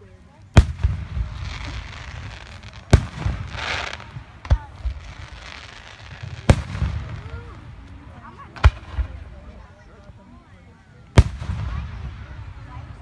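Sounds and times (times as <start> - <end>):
firework hiss: 0.6 - 9.6
fireworks bangs: 0.6 - 10.1, 11.1 - 13.0.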